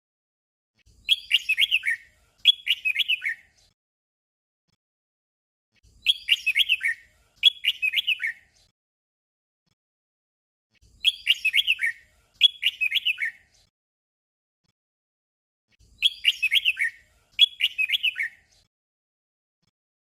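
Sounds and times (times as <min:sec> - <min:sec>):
bird whistling song: 0:00.9 - 0:03.7, 0:05.9 - 0:08.7, 0:10.9 - 0:13.6, 0:15.8 - 0:18.6.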